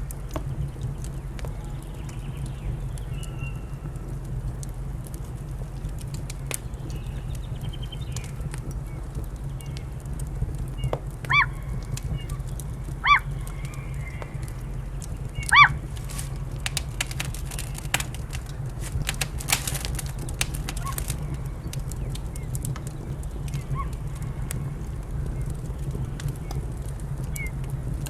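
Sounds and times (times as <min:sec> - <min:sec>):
fireplace fire crackling: 0:00.0 - 0:28.0
bird calls: 0:10.8 - 0:24.4.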